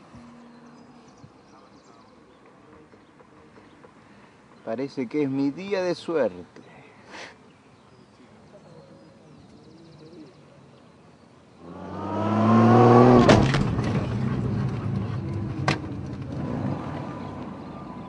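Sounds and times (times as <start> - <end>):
car engine revving: 11.6 - 18.0.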